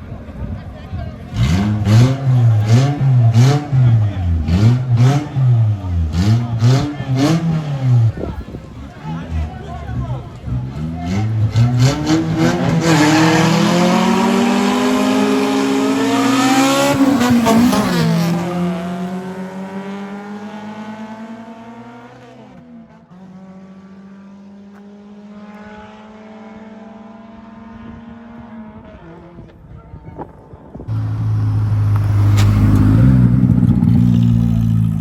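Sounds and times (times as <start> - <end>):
race car accelerating: 0.4 - 29.5, 30.9 - 35.0.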